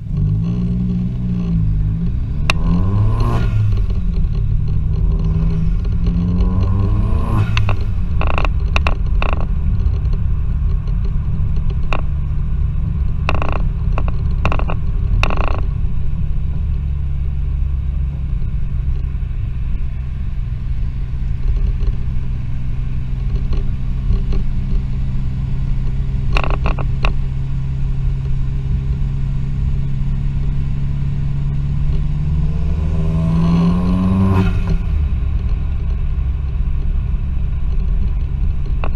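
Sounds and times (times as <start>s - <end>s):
turbocharged engine revving: 0.0s - 10.1s, 23.3s - 36.1s
engine drone while cruising: 0.0s - 38.9s
exhaust pops and bangs: 0.1s - 16.7s, 21.4s - 27.4s, 34.2s - 38.9s.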